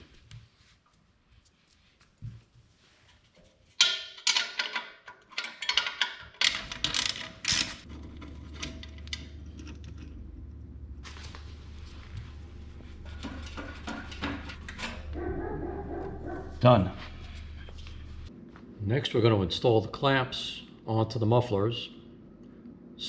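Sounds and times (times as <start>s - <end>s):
metal parts clanking: 3.8s - 10.3s, 13.0s - 15.2s
steady low hum: 7.8s - 23.0s.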